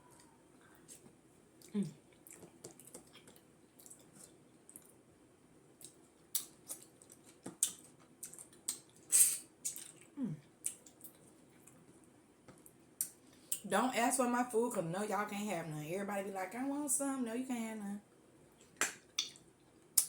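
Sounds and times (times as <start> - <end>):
wet mouth eating sounds: 0.9 - 5.0, 5.8 - 11.9, 18.6 - 19.4.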